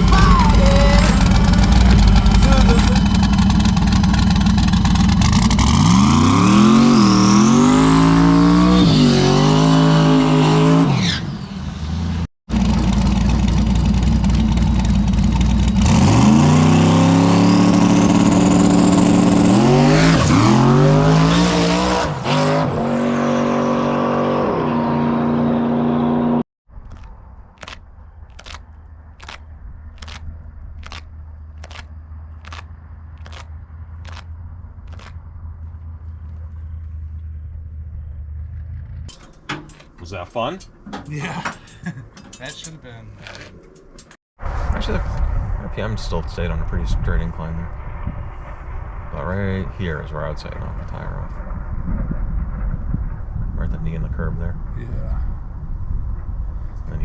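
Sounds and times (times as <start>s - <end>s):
drag car accelerating hard: 0.0s - 26.4s
sharp clicks: 26.9s - 29.4s, 30.0s - 34.3s, 34.9s - 35.2s.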